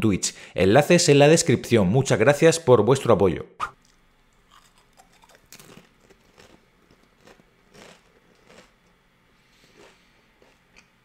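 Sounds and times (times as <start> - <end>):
chewing crunchy chip: 3.8 - 9.0, 9.6 - 11.0.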